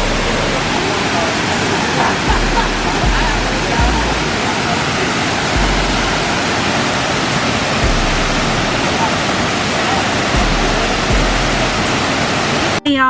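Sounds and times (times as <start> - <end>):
deep low rumble: 0.0 - 0.8, 2.3 - 4.4, 5.6 - 6.4, 7.8 - 9.0, 10.4 - 11.9
waterfall: 0.0 - 12.8.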